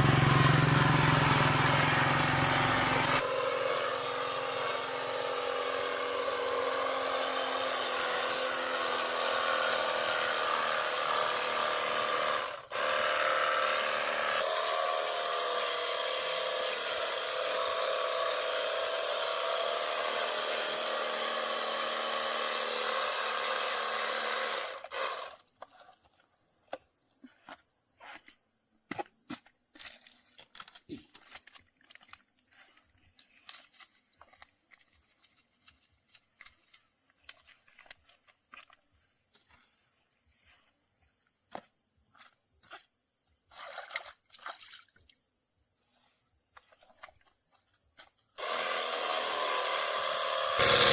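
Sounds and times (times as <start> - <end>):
power tool motor whining: 0.0 - 25.4, 48.4 - 50.9.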